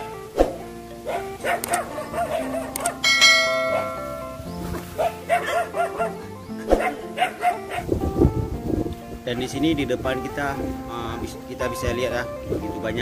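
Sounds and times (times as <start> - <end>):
dog barking: 1.0 - 4.3, 5.0 - 7.9
bell chime ringing: 1.4 - 5.8.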